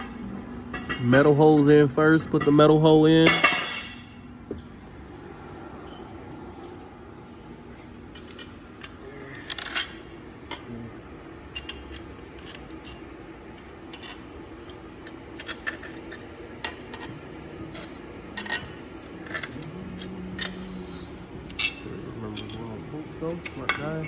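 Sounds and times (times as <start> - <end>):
metal tools clinking on engine parts: 7.8 - 10.7, 11.5 - 13.0, 13.9 - 24.0.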